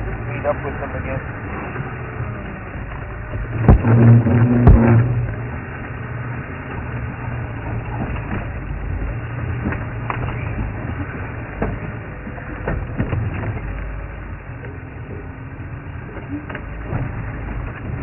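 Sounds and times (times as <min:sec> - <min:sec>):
vehicle engine drone: 0:00.0 - 0:18.0
knocks and rattles: 0:03.6 - 0:05.4.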